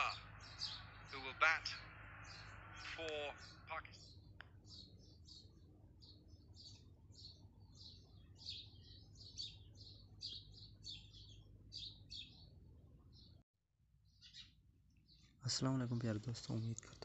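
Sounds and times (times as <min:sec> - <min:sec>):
birds chirping: 0:00.0 - 0:13.4, 0:14.0 - 0:17.0
faint low hum: 0:00.0 - 0:13.4.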